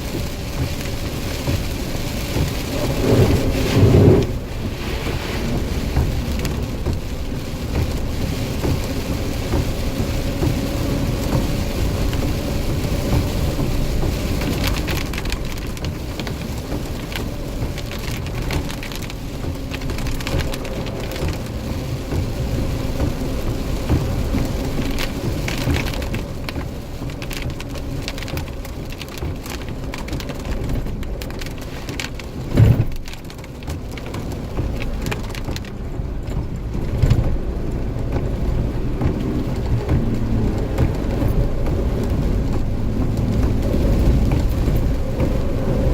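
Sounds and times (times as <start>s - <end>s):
thunder rumbling: 0.0s - 16.4s, 35.7s - 45.9s
heavy rain pouring: 0.0s - 45.9s
loud low thump: 32.5s - 33.0s.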